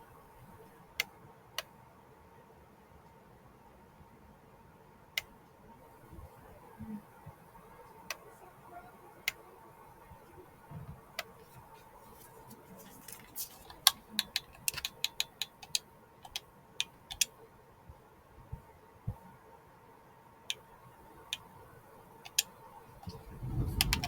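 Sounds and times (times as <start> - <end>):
faint steady hum: 0.0 - 24.0
sharp clicks and taps: 13.2 - 17.3, 22.2 - 23.2.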